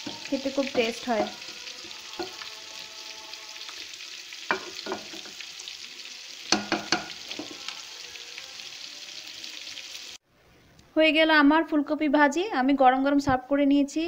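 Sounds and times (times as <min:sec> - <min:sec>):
vegetables sizzling in a pan: 0:00.0 - 0:10.2.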